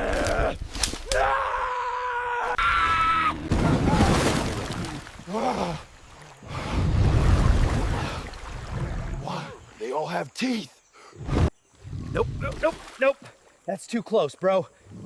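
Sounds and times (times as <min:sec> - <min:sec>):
person screaming and groaning: 0:00.0 - 0:04.2.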